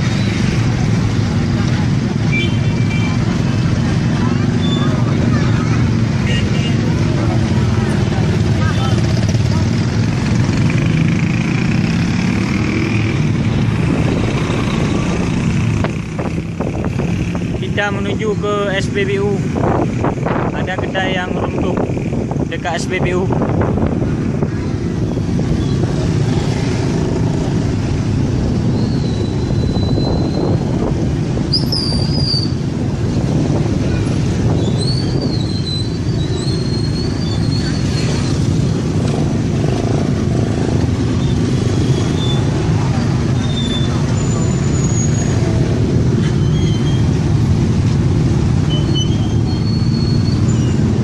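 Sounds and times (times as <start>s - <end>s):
vehicle engine and road noise: 0.0s - 51.0s
wind on microphone: 13.2s - 17.6s, 19.4s - 44.2s
high whistling squeaks: 28.7s - 30.6s, 31.5s - 32.6s, 34.6s - 38.4s, 41.2s - 45.4s, 46.2s - 47.2s, 48.7s - 50.9s.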